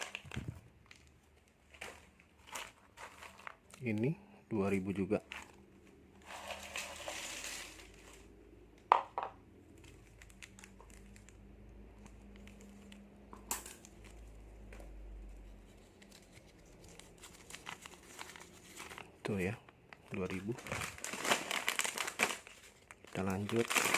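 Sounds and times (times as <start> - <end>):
plastic packets crinkling: 0.0 - 8.4, 9.5 - 23.9.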